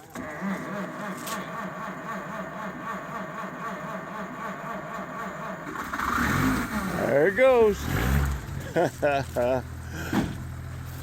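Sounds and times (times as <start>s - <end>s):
engine cranking by starter: 0.0s - 11.0s.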